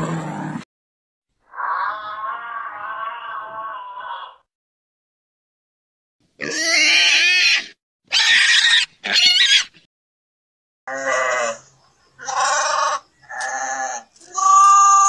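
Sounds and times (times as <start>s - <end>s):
pig squealing: 1.5s - 4.4s, 6.4s - 9.8s, 10.9s - 15.0s.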